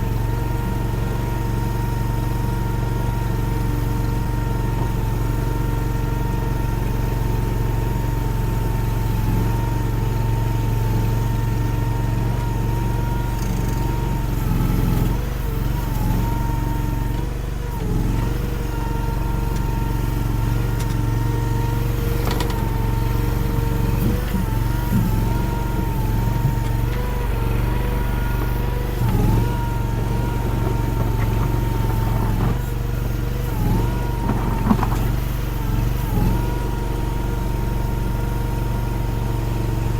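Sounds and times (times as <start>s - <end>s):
skid steer engine running: 0.0s - 39.9s.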